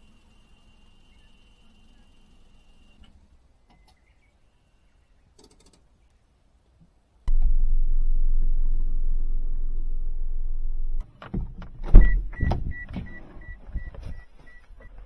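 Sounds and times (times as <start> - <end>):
van engine idling: 7.3 - 15.0
door thumps: 9.6 - 14.1.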